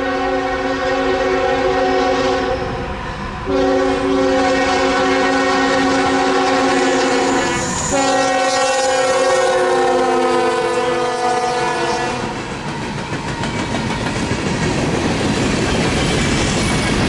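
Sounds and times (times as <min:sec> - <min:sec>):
locomotive air horn: 0:00.0 - 0:02.9, 0:03.5 - 0:12.4
train rumble: 0:00.0 - 0:17.0.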